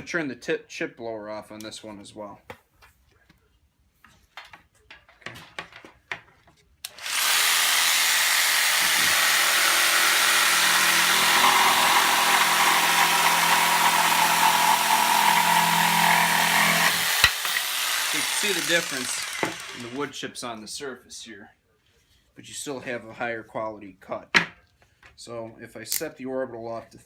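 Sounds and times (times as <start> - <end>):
jigsaw cutting wood: 6.9 - 20.1.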